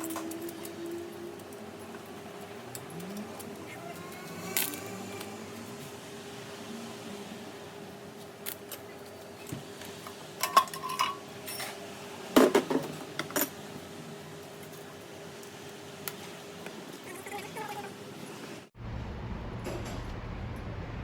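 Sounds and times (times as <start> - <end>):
steady hum: 0.0 - 21.0
metal tools clinking and knocking: 10.4 - 11.8.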